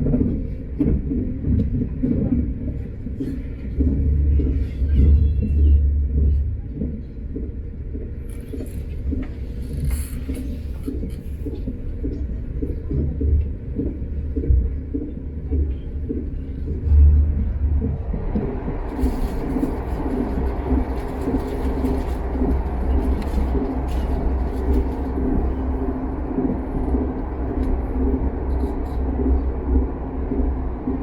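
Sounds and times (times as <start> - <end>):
train rumbling at speed: 0.0 - 31.0.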